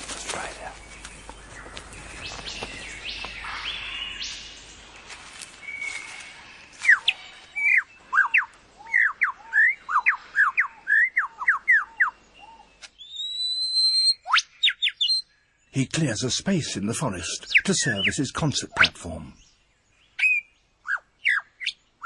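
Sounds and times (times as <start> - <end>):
bird calls: 0.0 - 22.0
faint forest sounds: 0.0 - 22.0
lyrebird whistling song: 5.6 - 15.3, 20.1 - 21.8.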